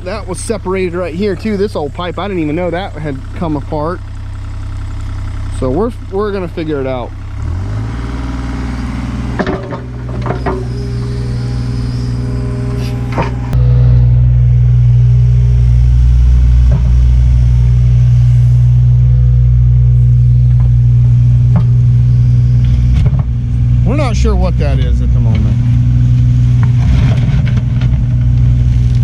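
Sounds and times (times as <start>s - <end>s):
excavator diesel engine running: 0.0s - 29.0s
sharp metallic knocks: 9.3s - 13.7s.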